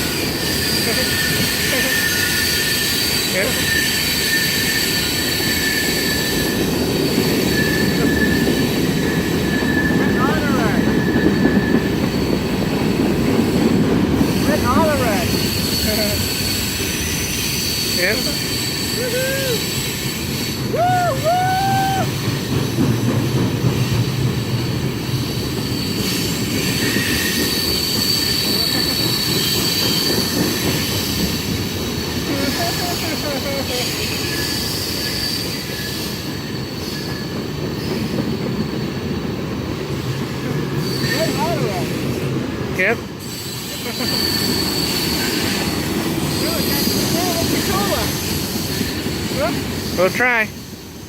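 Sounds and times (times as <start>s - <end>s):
high-pitched wheel squeal: 0.0s - 12.5s, 13.4s - 22.6s, 25.1s - 39.2s, 40.6s - 42.0s, 42.8s - 51.0s
train cars rumbling on rails: 0.0s - 51.0s.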